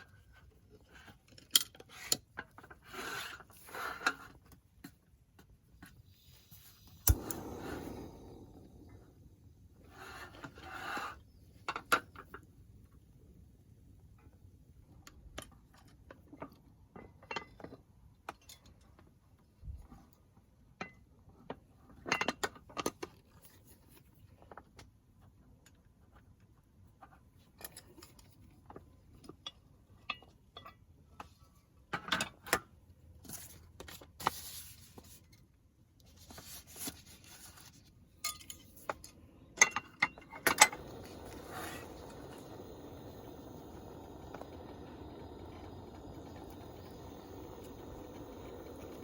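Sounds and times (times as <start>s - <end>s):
steady hiss: 6.0s - 11.2s, 40.3s - 49.0s
metal cookware clinking: 38.2s - 38.8s.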